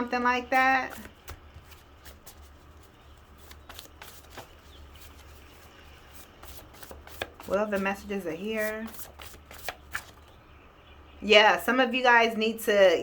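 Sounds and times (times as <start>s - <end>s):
cards being shuffled: 0.6s - 10.4s.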